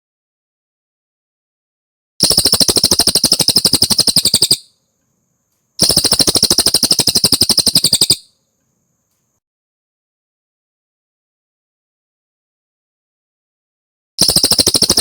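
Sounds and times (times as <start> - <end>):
bird singing fast trills: 2.2 - 4.8, 5.8 - 8.4, 14.2 - 15.0.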